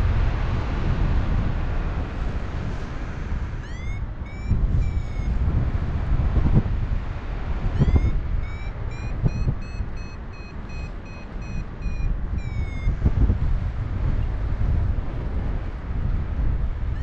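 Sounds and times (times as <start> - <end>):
wind buffeting microphone: 0.0 - 17.0
variometer beeping: 3.6 - 5.6, 7.7 - 13.3.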